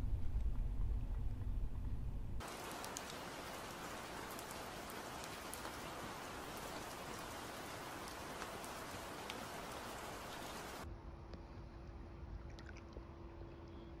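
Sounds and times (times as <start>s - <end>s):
steady rain falling: 2.4s - 10.9s.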